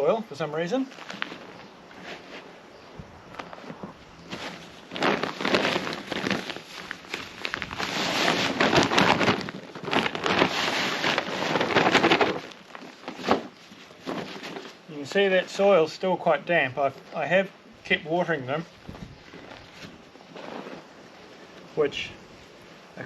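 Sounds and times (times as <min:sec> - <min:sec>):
hands rummaging through soil: 0:00.0 - 0:15.6, 0:18.8 - 0:21.8.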